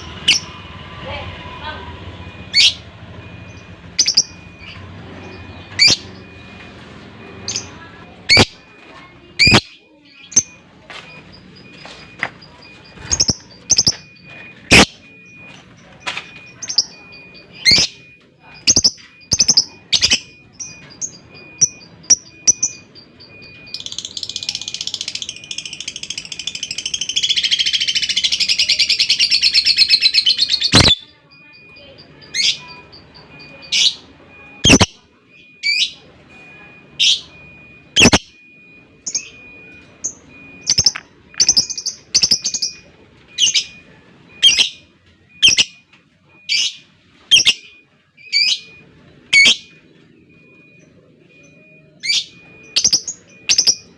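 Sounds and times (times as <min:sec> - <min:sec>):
lovebird chirping: 0:03.4 - 0:06.5, 0:07.3 - 0:08.6, 0:09.3 - 0:15.5, 0:16.4 - 0:38.2, 0:39.1 - 0:45.8, 0:46.4 - 0:50.9, 0:51.5 - 0:53.9
lovebird chattering trill: 0:09.4 - 0:10.5, 0:34.6 - 0:34.9, 0:38.0 - 0:38.2.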